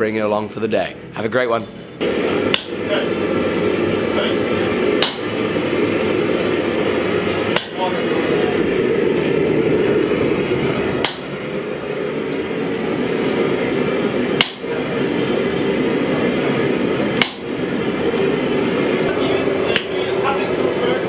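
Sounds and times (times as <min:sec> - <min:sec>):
forge roaring: 0:02.0 - 0:21.0
hammer striking steel: 0:02.4 - 0:02.8, 0:05.0 - 0:05.3, 0:07.5 - 0:07.8, 0:11.0 - 0:11.3, 0:14.4 - 0:14.7, 0:17.2 - 0:17.5.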